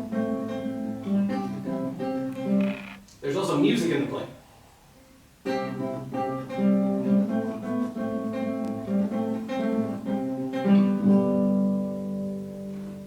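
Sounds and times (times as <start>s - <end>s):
acoustic guitar plucking and strumming: 0.0s - 3.7s, 5.1s - 13.0s.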